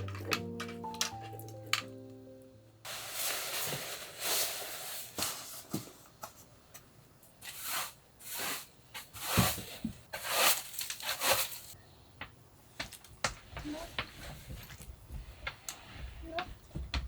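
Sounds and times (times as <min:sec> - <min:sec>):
rustling and handling noises: 0:02.8 - 0:11.8, 0:12.8 - 0:17.0.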